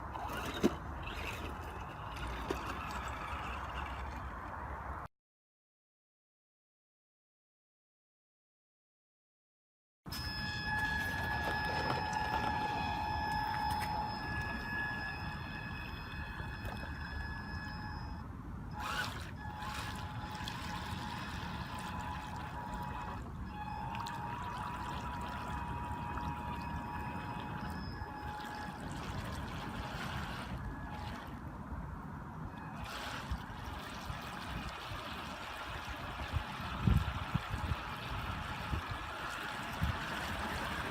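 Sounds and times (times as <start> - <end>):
churning water rushing: 0.0 - 4.7, 18.8 - 31.5, 32.5 - 40.9
electric motor whine: 10.1 - 31.2.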